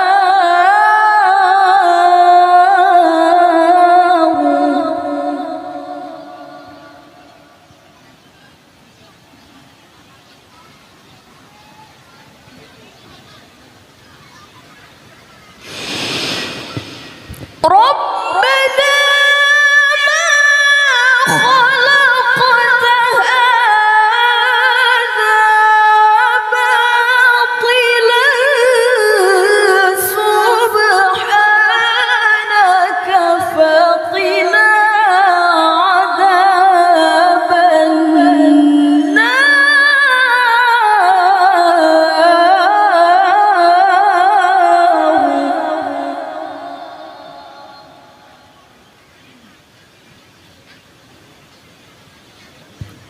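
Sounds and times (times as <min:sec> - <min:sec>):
woman reciting melodically: 0:00.0 - 0:07.7, 0:17.6 - 0:48.4.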